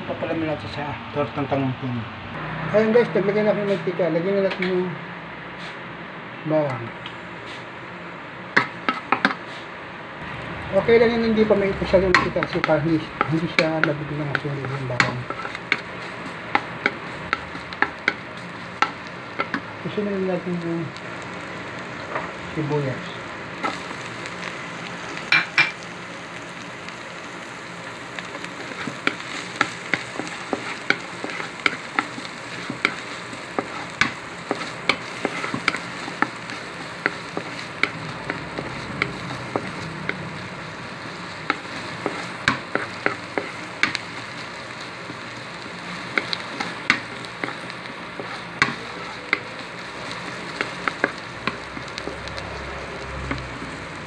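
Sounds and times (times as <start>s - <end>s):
onion and garlic sizzling in wok: 2.4s - 4.9s, 6.5s - 54.0s
wooden spatula stirring: 28.5s - 45.3s, 46.0s - 52.4s.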